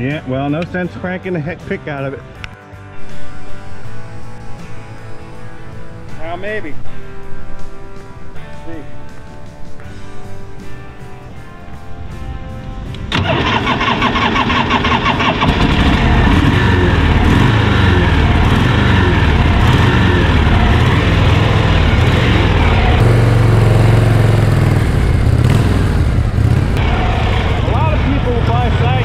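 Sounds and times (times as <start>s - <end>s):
background music: 0.0s - 29.0s
motorcycle engine revving: 13.1s - 29.0s.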